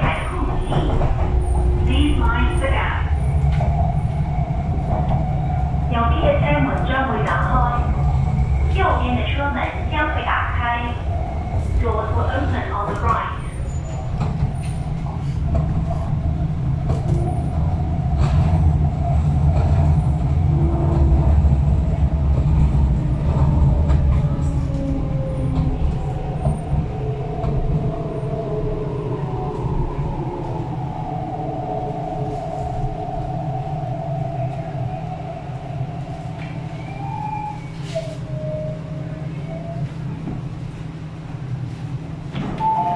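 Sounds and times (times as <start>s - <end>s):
train wheels rumbling on track: 0.0s - 42.9s.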